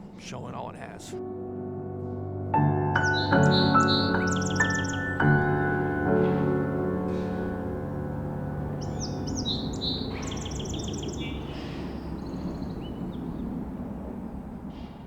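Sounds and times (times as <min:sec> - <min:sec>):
songbirds singing: 0:02.6 - 0:15.0
low outdoor rumble: 0:04.5 - 0:15.0.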